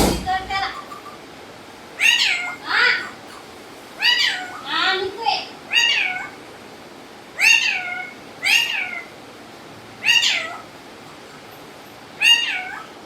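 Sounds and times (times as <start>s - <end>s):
meow-like calls: 4.0s - 4.7s, 5.7s - 6.4s, 7.4s - 9.2s, 10.0s - 10.7s, 12.2s - 13.0s.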